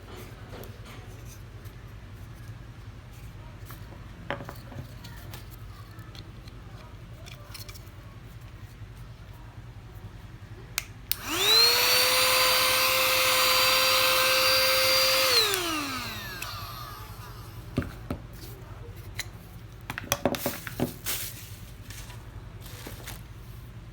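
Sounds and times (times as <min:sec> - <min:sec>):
vacuum cleaner motor whining: 0:11.1 - 0:18.0.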